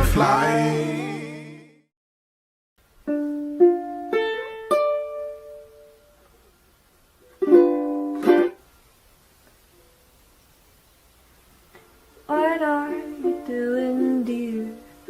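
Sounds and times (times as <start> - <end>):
ukulele strummed chords: 0.0 - 1.3, 3.0 - 6.2, 7.3 - 8.6, 12.2 - 15.0
ukulele plucked notes: 3.0 - 6.2, 7.3 - 8.6, 12.3 - 15.0.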